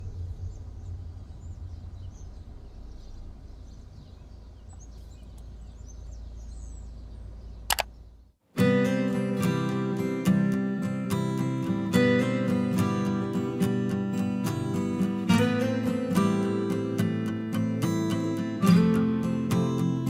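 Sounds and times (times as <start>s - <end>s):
low rumble: 0.0s - 8.0s
faint bird chirps: 0.0s - 8.4s
strummed acoustic guitar: 8.5s - 20.0s.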